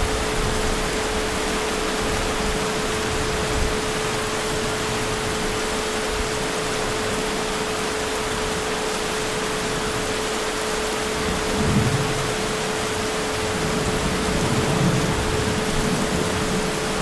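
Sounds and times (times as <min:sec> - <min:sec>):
heavy rain: 0:00.0 - 0:17.0
distant thunder rumble: 0:11.2 - 0:17.0.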